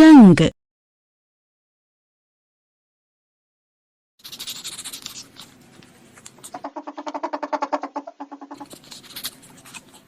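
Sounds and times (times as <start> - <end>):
pulsed grunting calls: 6.5 - 8.8
raspy hissing animal call: 6.5 - 8.8.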